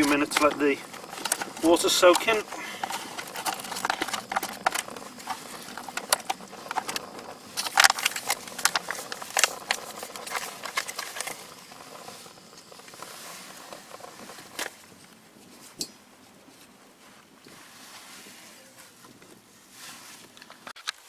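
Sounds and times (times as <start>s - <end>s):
foil pouch crinkling: 0.0s - 15.0s.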